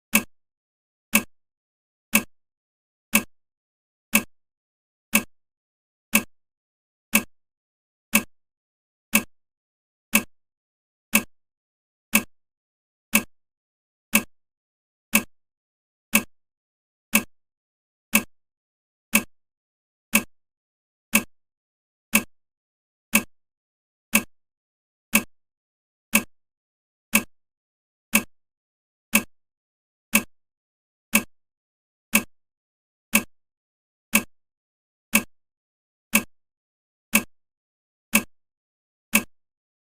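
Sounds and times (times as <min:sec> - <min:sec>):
clock ticking: 0:00.1 - 0:00.3, 0:01.1 - 0:01.3, 0:02.1 - 0:02.3, 0:03.1 - 0:03.3, 0:04.1 - 0:04.3, 0:05.1 - 0:05.3, 0:06.1 - 0:06.3, 0:07.1 - 0:07.3, 0:08.1 - 0:08.3, 0:09.1 - 0:09.3, 0:10.1 - 0:10.3, 0:11.1 - 0:11.3, 0:12.1 - 0:12.3, 0:13.1 - 0:13.3, 0:14.1 - 0:14.3, 0:15.1 - 0:15.3, 0:16.1 - 0:16.3, 0:17.1 - 0:17.3, 0:18.1 - 0:18.3, 0:19.1 - 0:19.3, 0:20.1 - 0:20.3, 0:21.1 - 0:21.3, 0:22.1 - 0:22.3, 0:23.1 - 0:23.3, 0:24.1 - 0:24.3, 0:25.1 - 0:25.3, 0:26.1 - 0:26.3, 0:27.1 - 0:27.3, 0:28.1 - 0:28.3, 0:29.1 - 0:29.3, 0:30.1 - 0:30.3, 0:31.1 - 0:31.3, 0:32.1 - 0:32.3, 0:33.1 - 0:33.3, 0:34.1 - 0:34.3, 0:35.1 - 0:35.3, 0:36.1 - 0:36.3, 0:37.1 - 0:37.4, 0:38.1 - 0:38.3, 0:39.1 - 0:39.4.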